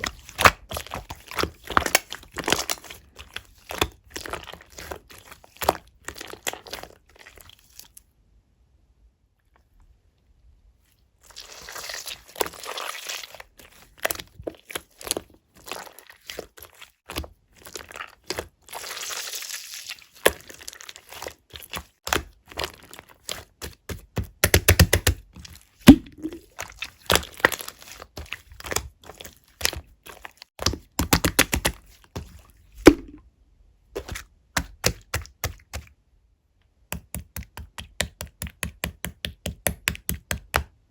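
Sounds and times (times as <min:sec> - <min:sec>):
air bubble pops: 0:25.9 - 0:26.5, 0:32.8 - 0:33.2
slime squeezed by hand: 0:25.9 - 0:27.8, 0:32.8 - 0:33.2.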